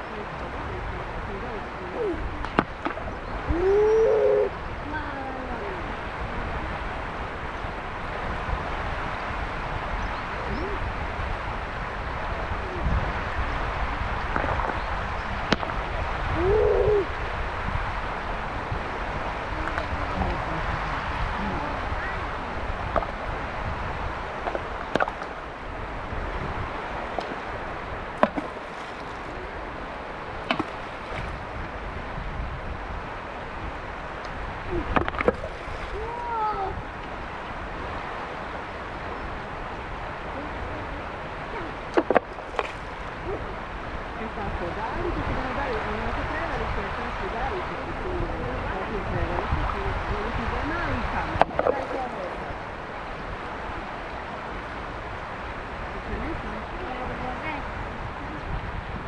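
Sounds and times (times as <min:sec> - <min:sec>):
water gurgles and plops: 0:00.0 - 0:05.0, 0:26.3 - 0:32.1, 0:34.2 - 0:37.2
faint calls over water: 0:00.0 - 0:09.0, 0:09.8 - 0:59.0
mountain river rushing: 0:00.0 - 0:59.0.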